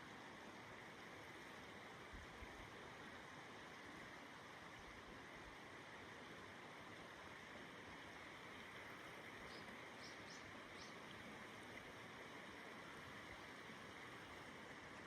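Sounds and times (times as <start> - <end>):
stream water rushing: 0.0 - 15.0
small bird chirping: 9.5 - 11.0.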